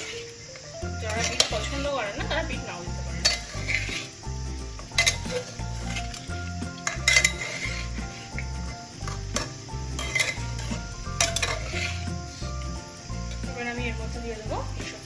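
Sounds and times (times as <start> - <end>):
food sizzling in a pot: 0.0 - 15.0
metal spoon clinking against pot: 1.0 - 4.1, 4.8 - 8.0, 9.0 - 12.0.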